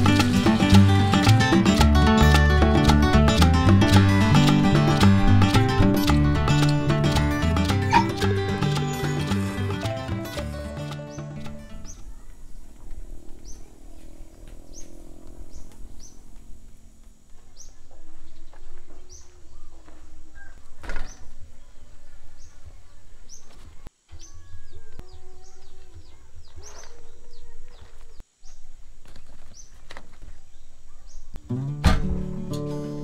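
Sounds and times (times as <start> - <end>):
bird chirping: 6.4 - 31.4
animal calls: 7.7 - 9.9.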